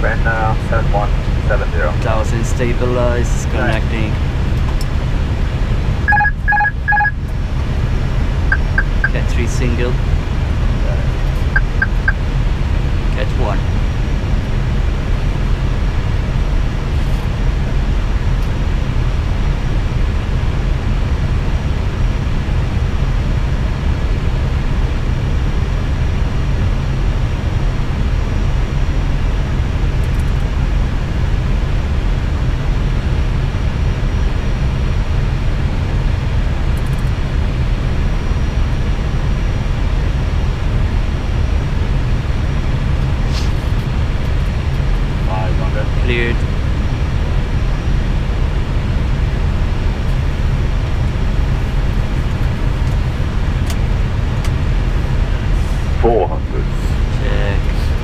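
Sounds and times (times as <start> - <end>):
rumble of airflow and engines: 0.0 - 58.0
faint high whine: 6.0 - 7.6, 8.4 - 10.0, 10.8 - 12.4.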